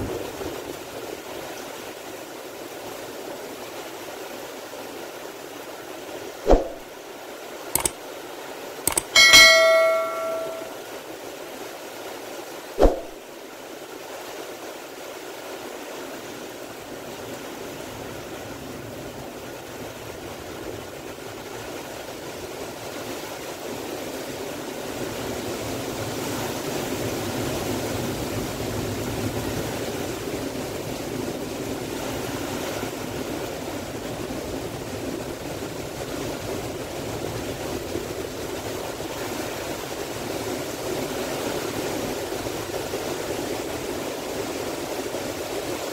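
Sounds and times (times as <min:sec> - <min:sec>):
heavy rain: 0:00.0 - 0:08.8, 0:11.3 - 0:45.9
wind through trees: 0:00.0 - 0:10.7
sharp knock: 0:06.5 - 0:06.8, 0:08.9 - 0:10.7, 0:12.8 - 0:13.2.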